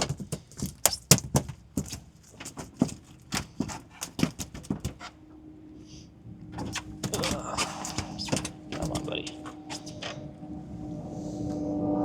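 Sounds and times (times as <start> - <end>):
fish thrashing slaps and knocks: 0.0 - 5.1, 6.6 - 10.2.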